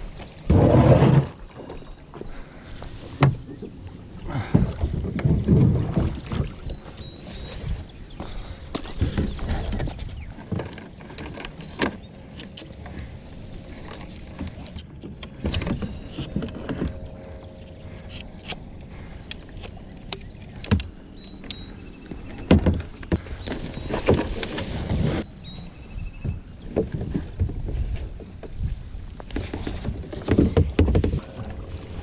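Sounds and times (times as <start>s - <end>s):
fishing gear clicking and rattling: 6.6s - 24.7s.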